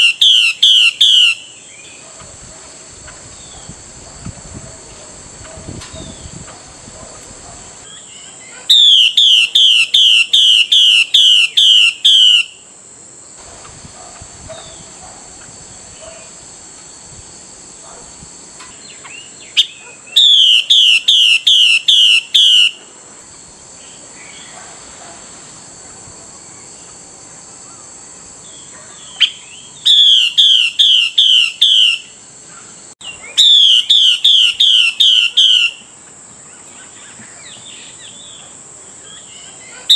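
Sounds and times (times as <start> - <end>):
bird calling: 0.0 - 2.4, 4.9 - 12.6, 18.6 - 22.9, 28.5 - 39.9.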